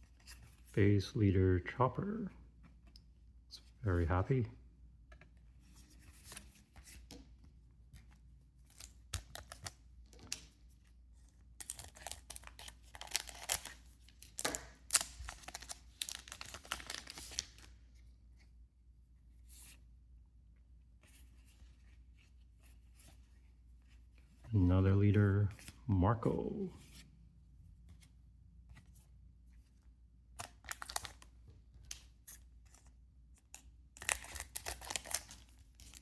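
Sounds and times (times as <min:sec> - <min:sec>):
foil wrapper tearing and crinkling: 0:11.6 - 0:13.8, 0:14.4 - 0:17.5, 0:30.4 - 0:31.2, 0:34.0 - 0:36.0.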